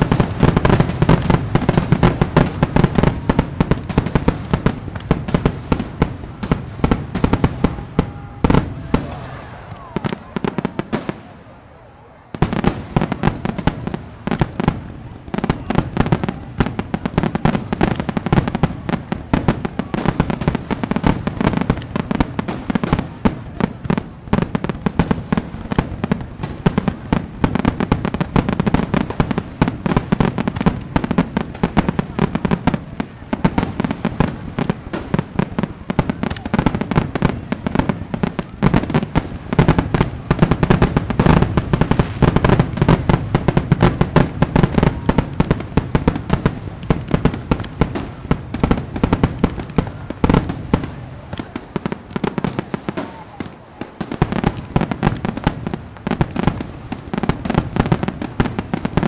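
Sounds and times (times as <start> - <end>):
fireworks banging and crackling: 0.0 - 59.0.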